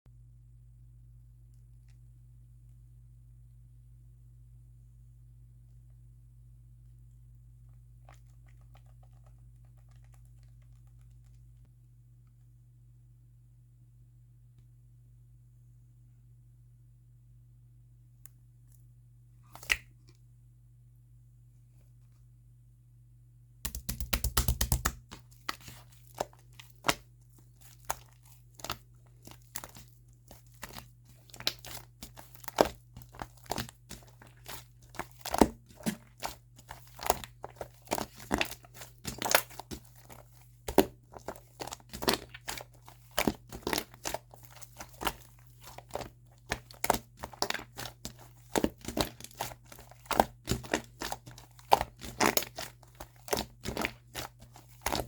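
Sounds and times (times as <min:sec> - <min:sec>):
slime crackling and popping: 0:23.7 - 0:55.0.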